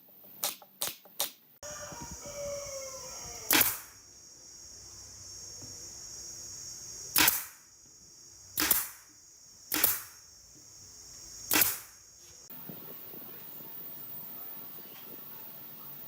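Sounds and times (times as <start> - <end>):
steady high whine: 3.0 - 16.0
sharp bangs: 9.7 - 10.3, 11.5 - 12.1.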